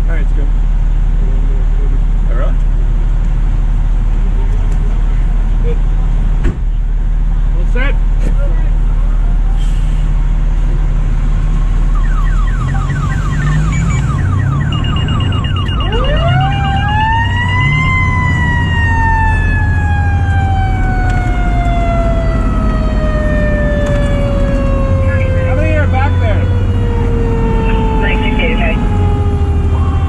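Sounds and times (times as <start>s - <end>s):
fire truck engine running: 0.0s - 30.0s
electronic siren yelping: 11.9s - 30.0s.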